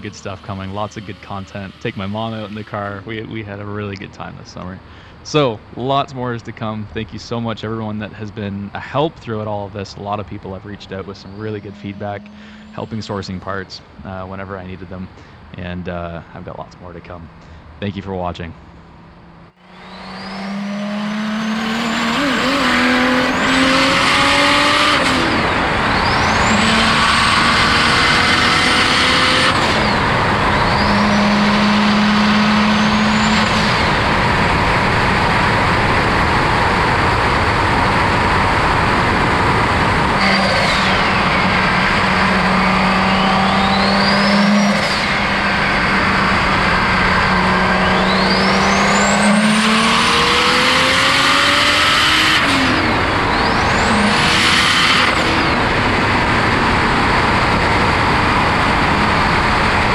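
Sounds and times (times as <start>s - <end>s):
car engine accelerating hard: 0.0s - 17.5s, 19.4s - 59.9s
turbo whine: 0.0s - 59.9s.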